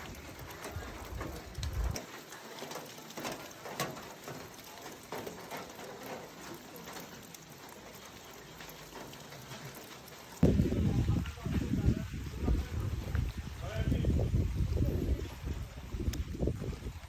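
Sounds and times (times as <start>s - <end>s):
rain hissing: 0.0s - 17.0s
raindrops tapping: 0.0s - 17.0s.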